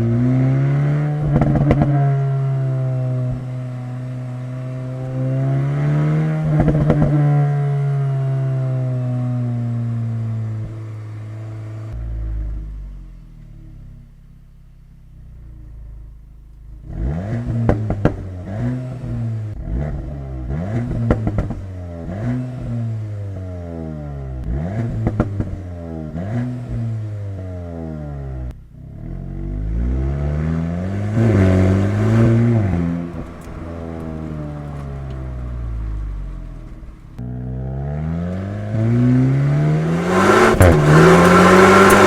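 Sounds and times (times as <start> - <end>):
car engine revving: 0.0 - 13.9, 16.7 - 42.0
exhaust crackles and pops: 31.2 - 37.6, 38.3 - 42.0.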